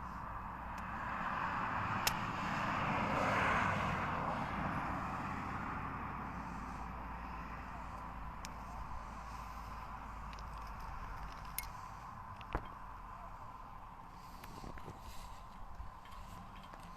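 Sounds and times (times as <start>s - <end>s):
vehicle passing by: 0.0s - 12.3s.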